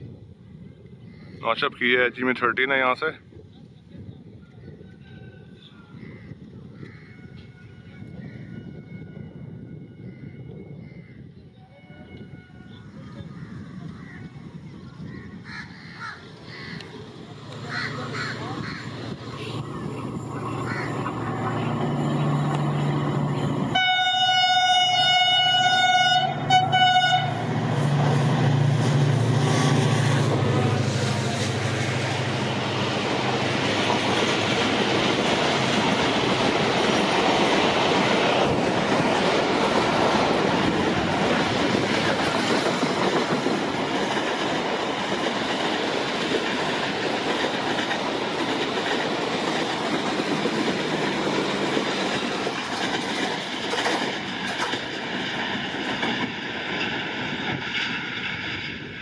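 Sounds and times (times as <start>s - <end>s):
train coaches rolling on rails: 11.4s - 59.0s
locomotive engine running: 16.8s - 57.7s
locomotive horn blasts: 23.7s - 27.4s.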